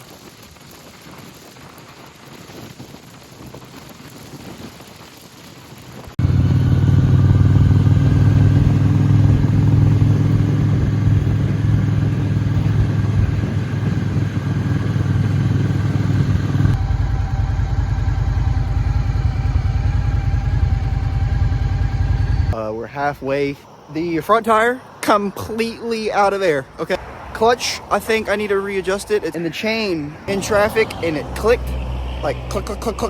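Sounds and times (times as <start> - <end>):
motorcycle engine running: 6.2 - 22.6.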